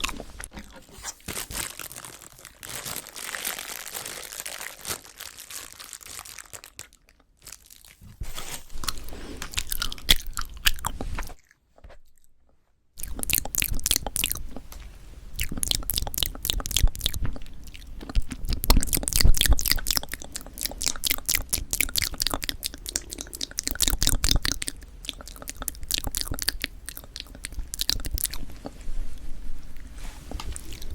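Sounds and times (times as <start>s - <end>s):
chewing sticky marshmallow: 0.0s - 0.8s, 8.8s - 12.3s, 13.0s - 30.9s.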